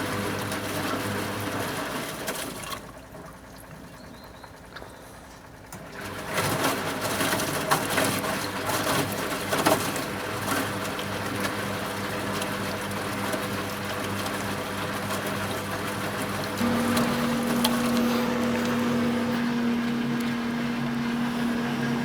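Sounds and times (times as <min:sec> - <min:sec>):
washing machine motor hum: 0:05.4 - 0:22.0.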